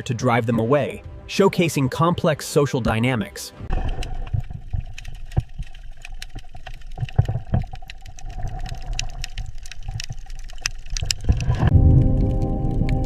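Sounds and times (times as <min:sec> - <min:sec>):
clicks and pops: 0:03.7 - 0:13.0
low underwater rumble: 0:03.7 - 0:13.0.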